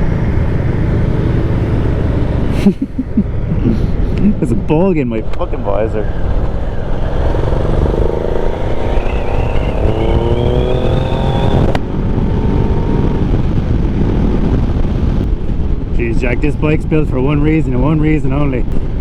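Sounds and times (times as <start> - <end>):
wind rush: 1.4 - 19.0
motorcycle engine accelerating: 5.3 - 15.9.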